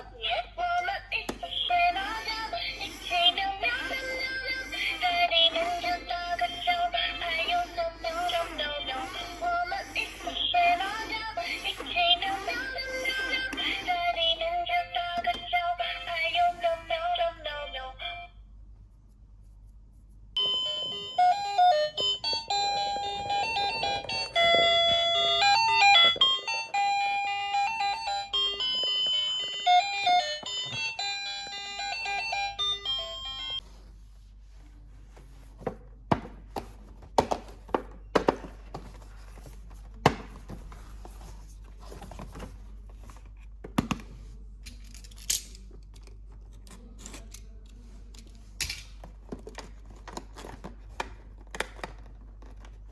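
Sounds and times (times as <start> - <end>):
electronic toy beeping melody: 20.4 - 33.6.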